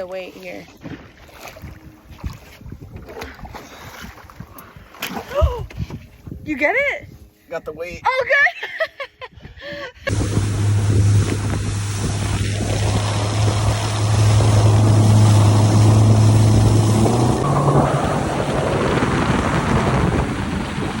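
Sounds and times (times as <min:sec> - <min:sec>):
wind and water rushing: 0:00.0 - 0:06.4, 0:10.1 - 0:21.0
outboard motor running: 0:10.1 - 0:21.0.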